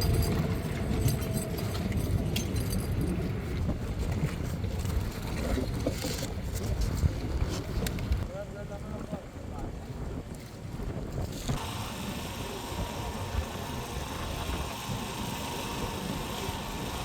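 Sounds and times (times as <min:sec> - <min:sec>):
engine running rumble: 0:00.0 - 0:05.9, 0:11.4 - 0:17.0.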